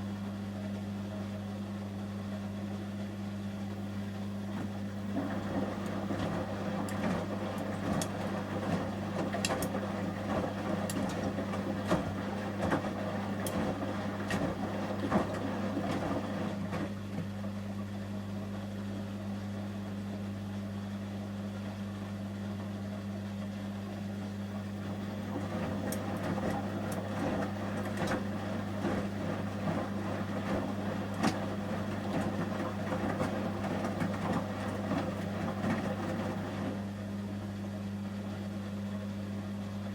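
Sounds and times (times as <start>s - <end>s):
washing machine humming: 0.0s - 39.9s
wet laundry swishing: 4.6s - 17.0s, 25.0s - 36.8s.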